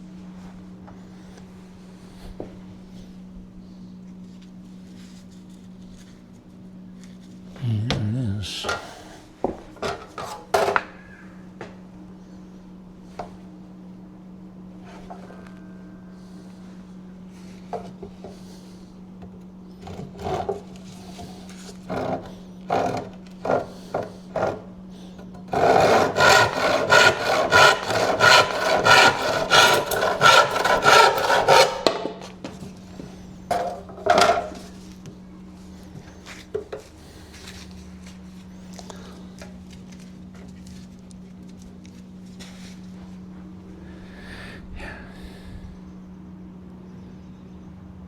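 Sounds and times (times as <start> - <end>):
hand saw cutting wood: 19.8 - 32.5.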